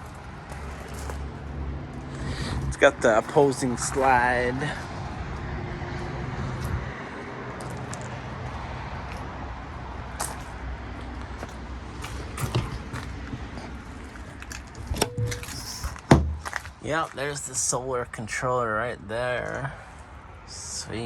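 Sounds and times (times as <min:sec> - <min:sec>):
outdoor background noise: 0:00.0 - 0:21.0
low hum: 0:15.0 - 0:16.5.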